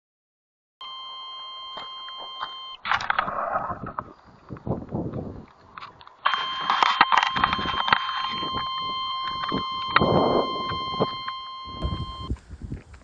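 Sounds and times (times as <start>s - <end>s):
high electronic tone: 6.3s - 12.3s.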